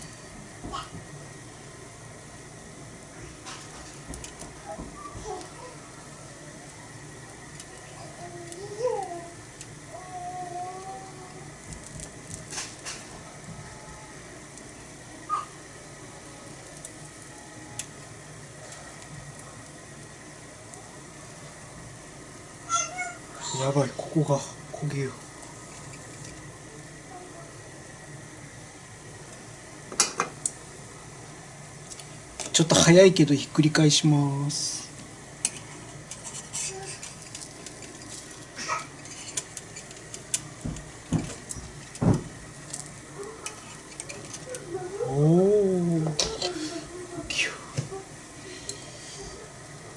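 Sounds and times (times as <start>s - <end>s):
batter and pork sizzling on griddle: 0.0s - 49.9s
metal spatulas scraping griddle: 35.5s - 40.3s, 46.2s - 46.9s.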